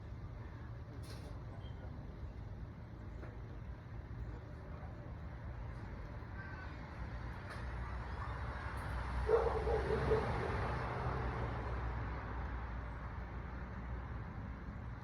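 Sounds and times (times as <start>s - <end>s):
dog barking: 9.2s - 10.6s.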